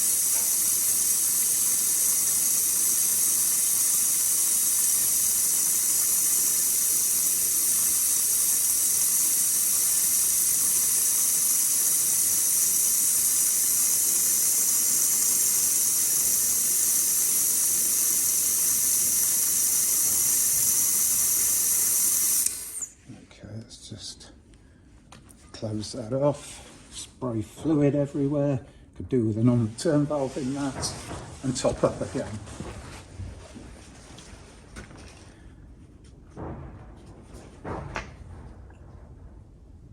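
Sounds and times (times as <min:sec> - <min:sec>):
vacuum brake bleeder hissing: 0:00.0 - 0:23.0.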